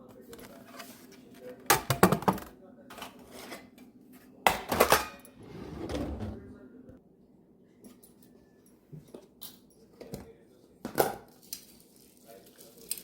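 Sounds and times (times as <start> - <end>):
dishes and utensils clattering: 0.2 - 6.4.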